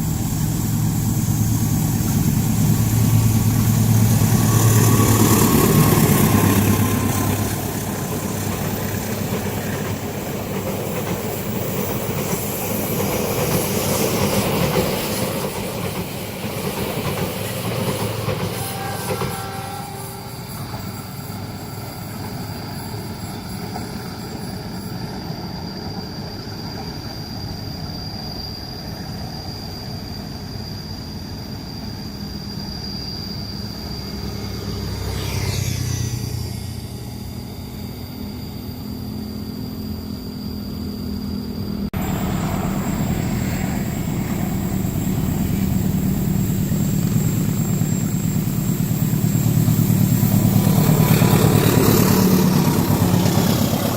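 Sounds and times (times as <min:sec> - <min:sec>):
thin high whine: 0:17.8 - 0:53.9
something passing by: 0:33.9 - 0:38.4, 0:41.8 - 0:53.9
low engine rumble: 0:41.6 - 0:53.9.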